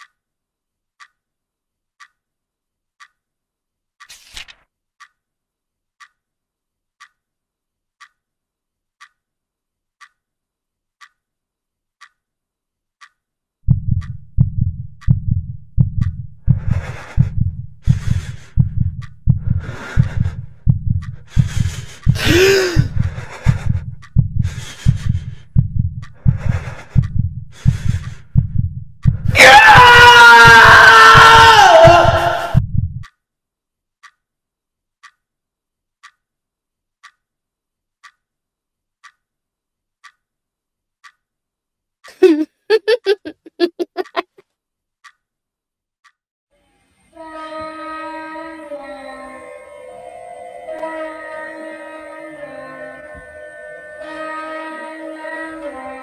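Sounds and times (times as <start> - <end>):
clock ticking faintly: 0.0 - 0.3, 1.0 - 1.3, 2.0 - 2.3, 3.0 - 3.3, 5.0 - 5.3, 6.0 - 6.3, 7.0 - 7.3, 8.0 - 8.3, 9.0 - 9.3, 9.9 - 10.3, 11.0 - 11.3, 12.0 - 12.3, 13.0 - 29.3, 32.6 - 33.2, 34.0 - 34.2, 35.0 - 35.3, 36.0 - 36.3, 37.0 - 37.3, 38.0 - 38.3, 39.0 - 39.3, 40.0 - 40.3, 41.0 - 41.3, 43.0 - 44.4, 45.0 - 45.2
heavy heartbeat pounding: 13.7 - 30.7, 31.4 - 33.0
loud scream: 29.3 - 32.6.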